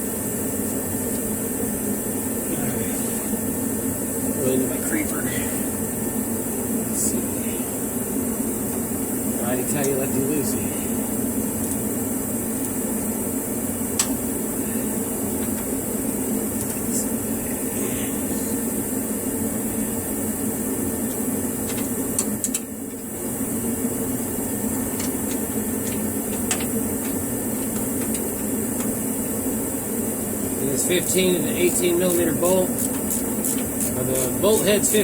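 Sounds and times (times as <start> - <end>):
steady hum: 0.0 - 35.0
wrench clicking: 31.0 - 35.0.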